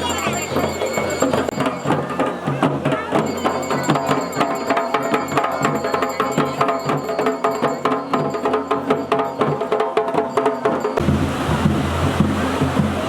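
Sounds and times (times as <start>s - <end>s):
rhythmic drumming: 0.0s - 13.0s.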